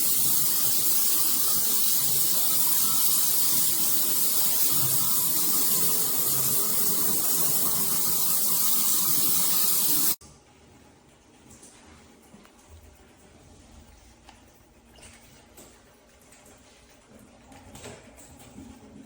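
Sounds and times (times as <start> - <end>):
water spraying from shower head: 0.0 - 10.2.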